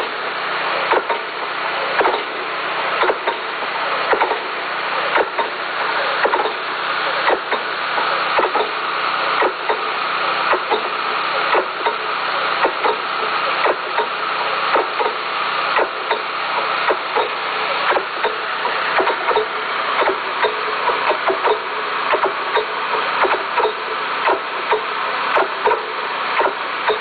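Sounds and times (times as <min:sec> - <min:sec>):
machine running: 0:00.0 - 0:27.0
irregular clicks and knocks: 0:00.9 - 0:01.3, 0:02.0 - 0:02.4, 0:03.0 - 0:03.5, 0:04.1 - 0:04.5, 0:05.1 - 0:05.6, 0:06.2 - 0:08.8, 0:09.4 - 0:09.9, 0:15.8 - 0:27.0.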